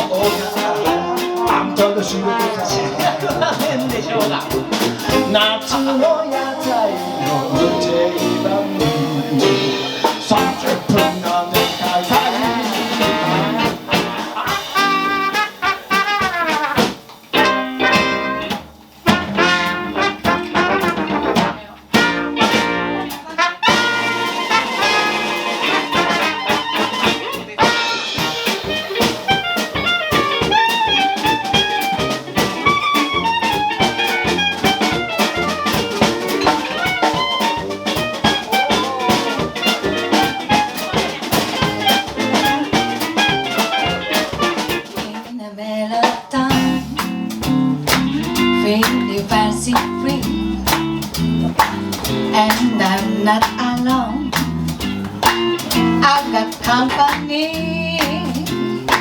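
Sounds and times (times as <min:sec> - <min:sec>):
trombone: 0:00.0 - 0:45.2
trumpet: 0:00.0 - 0:45.3
drum kit: 0:00.0 - 0:45.4, 0:46.0 - 0:59.0
jazz band playing: 0:00.0 - 0:45.4, 0:46.0 - 0:59.0.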